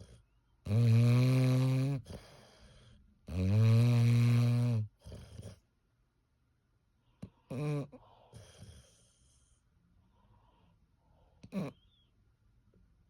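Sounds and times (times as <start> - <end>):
dog snoring loudly: 0.0 - 2.6, 3.3 - 5.6, 7.5 - 9.0
dog breathing softly: 1.9 - 3.2, 7.0 - 11.5.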